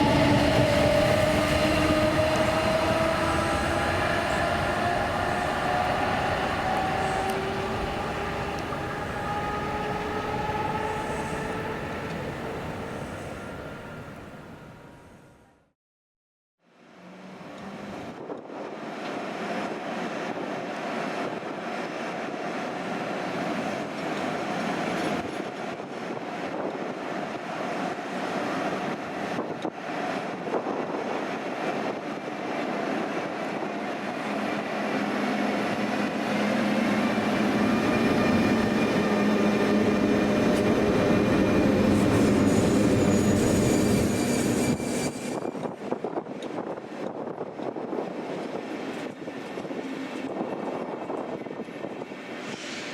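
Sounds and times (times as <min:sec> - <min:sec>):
steady whining tones: 0:00.0 - 0:14.7
electric train passing: 0:00.0 - 0:15.4, 0:16.9 - 0:52.9.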